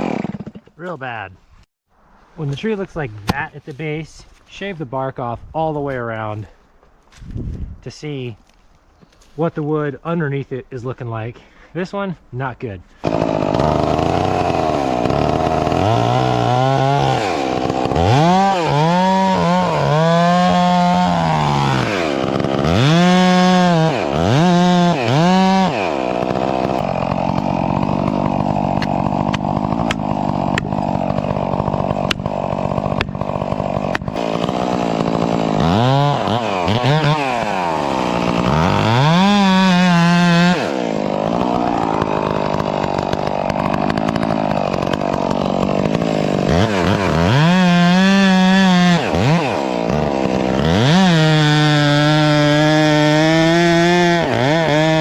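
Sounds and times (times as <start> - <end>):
chainsaw revving: 0.0 - 0.7, 12.9 - 55.0.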